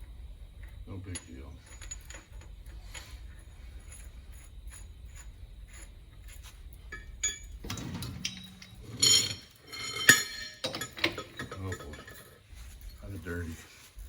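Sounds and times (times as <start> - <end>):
light metallic clinks and ticks: 0.5 - 14.0
metal parts clattering: 6.9 - 12.4.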